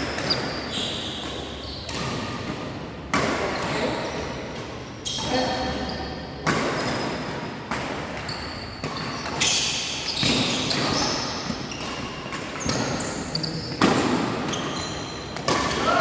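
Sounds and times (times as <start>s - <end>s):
shoe squeaks: 0.0s - 2.5s, 5.0s - 6.2s, 8.2s - 16.0s
rackets hitting shuttlecock: 6.4s - 16.0s.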